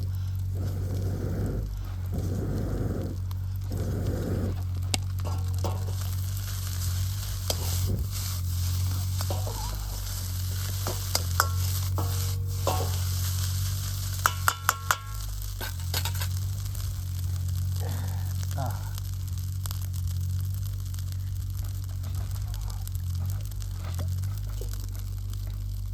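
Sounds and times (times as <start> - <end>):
rice sizzling in a wok: 0.0 - 25.9
metal ladle scraping a wok: 5.1 - 16.5
ladle tapping a wok: 7.1 - 16.3.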